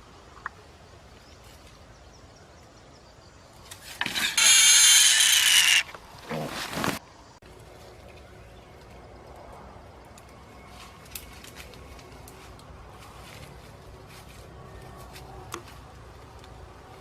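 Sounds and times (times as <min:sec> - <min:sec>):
pig squealing: 0:04.2 - 0:06.5.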